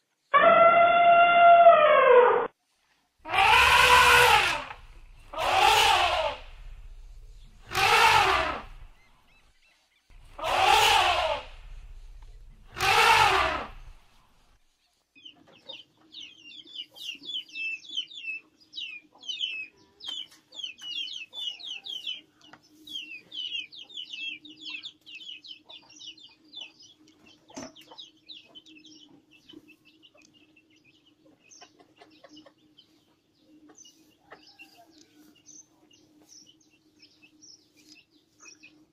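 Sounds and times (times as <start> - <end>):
elephants trumpeting: 3.2 - 9.2, 10.1 - 14.4
small birds chirping: 3.2 - 38.9
steady low hum: 4.3 - 9.5, 10.1 - 14.6.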